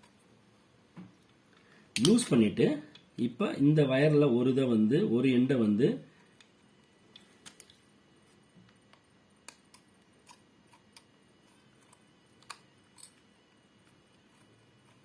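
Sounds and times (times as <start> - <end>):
light clicks of small parts: 6.3 - 7.8.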